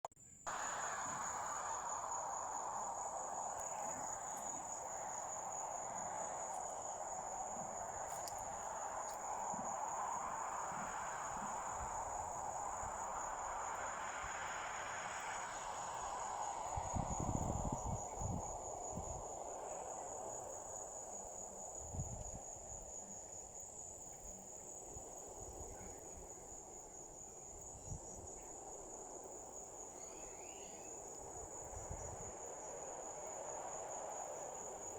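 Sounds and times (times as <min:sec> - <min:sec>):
crickets chirring: 0:00.2 - 0:34.9.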